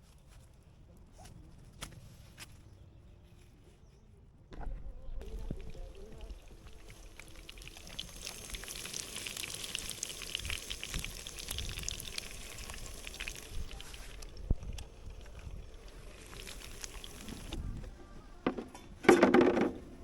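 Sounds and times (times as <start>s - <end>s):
liquid pouring: 5.2s - 18.6s.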